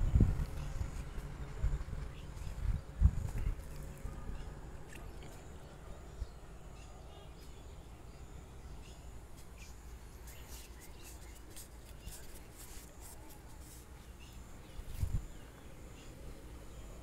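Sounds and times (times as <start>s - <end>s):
low microphone rumble: 0.0s - 6.5s.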